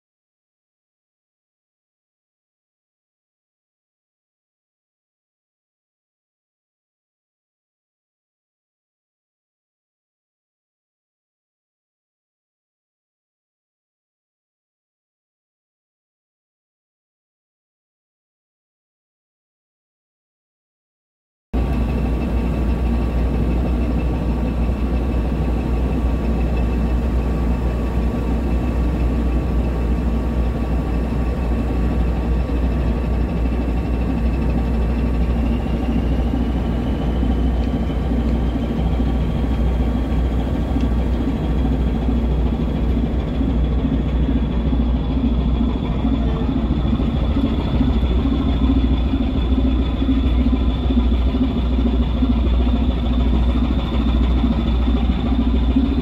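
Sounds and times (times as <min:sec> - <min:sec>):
ship engine deep drone: 0:21.6 - 0:56.0
thin high whine: 0:21.6 - 0:56.0.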